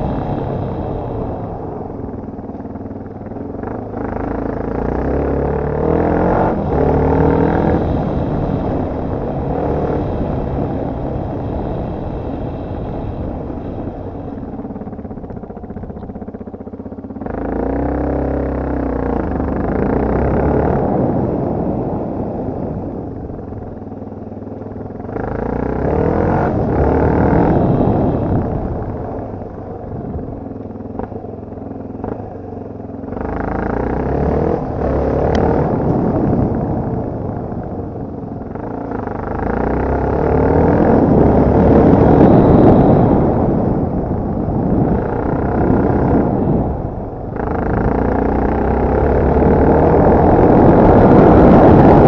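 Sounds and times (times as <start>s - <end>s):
dirt bike engine revving: 3.3s - 15.8s, 17.2s - 22.3s, 25.0s - 31.2s, 33.0s - 36.8s, 38.5s - 52.0s.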